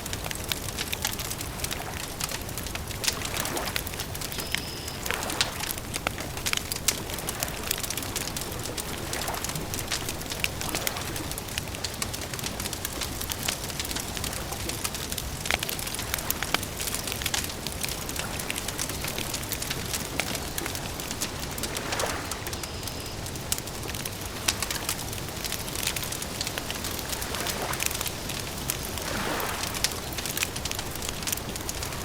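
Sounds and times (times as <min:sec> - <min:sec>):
campfire crackling: 0:00.0 - 0:32.0.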